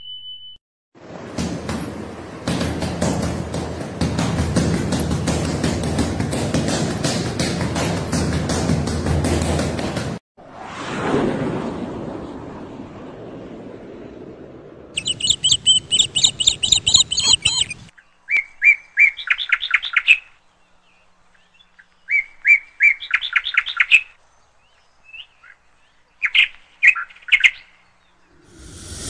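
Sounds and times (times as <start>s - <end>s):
bird song with chirps and trills: 0.0s - 0.6s, 15.0s - 28.4s.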